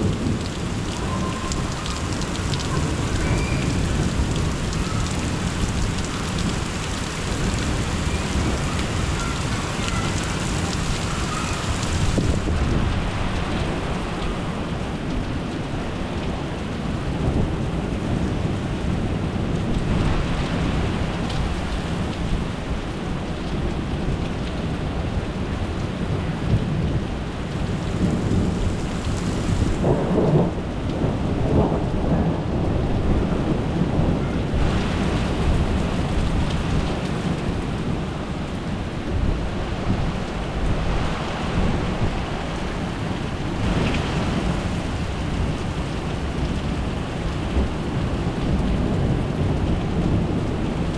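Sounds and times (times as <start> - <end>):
low rumbling thunder: 0.0 - 15.4, 26.1 - 38.2, 43.3 - 50.9
rain falling: 0.0 - 50.9.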